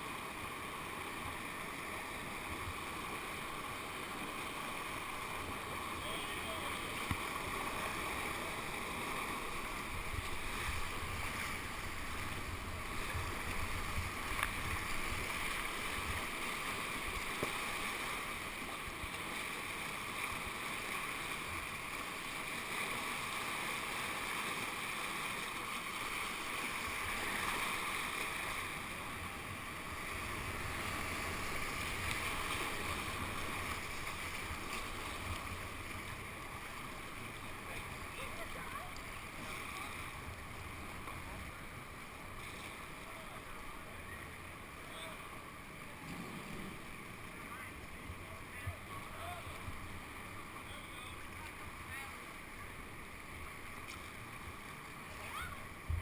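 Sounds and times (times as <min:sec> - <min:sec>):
water rushing down channel: 0:00.0 - 0:56.0.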